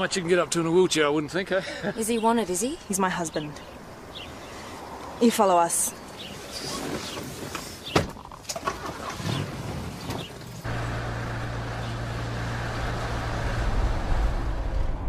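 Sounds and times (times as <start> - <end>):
vehicle engine humming: 9.0 - 15.0.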